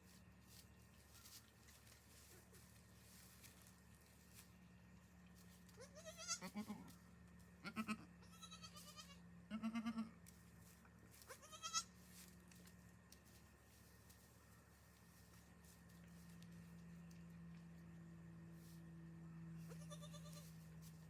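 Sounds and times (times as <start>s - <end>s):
goat kids bleating: 5.7s - 7.0s, 7.6s - 10.2s, 11.2s - 12.0s, 19.6s - 20.7s.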